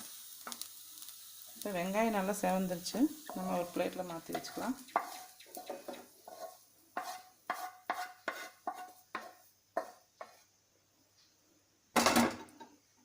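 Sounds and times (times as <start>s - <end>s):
metal spoon scraping a pan: 3.2s - 10.5s.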